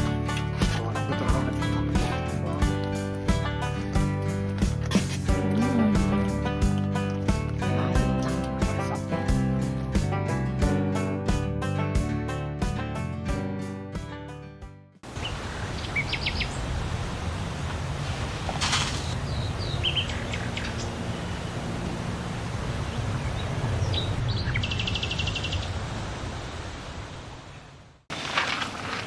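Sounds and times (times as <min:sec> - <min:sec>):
small birds chirping: 0:15.1 - 0:25.7
fast bird trill: 0:19.0 - 0:21.4.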